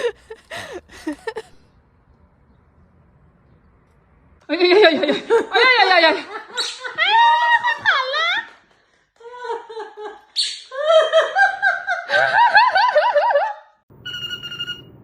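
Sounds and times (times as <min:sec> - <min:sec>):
electronic ringtone-like beeps: 0:14.0 - 0:15.0.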